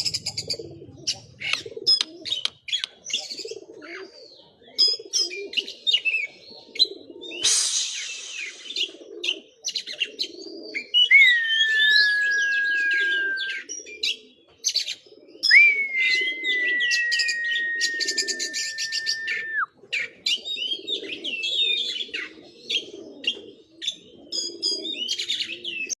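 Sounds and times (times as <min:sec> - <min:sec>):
low repeated bird call: 0:00.0 - 0:26.0
magpie-robin singing: 0:10.9 - 0:14.1, 0:14.7 - 0:19.7.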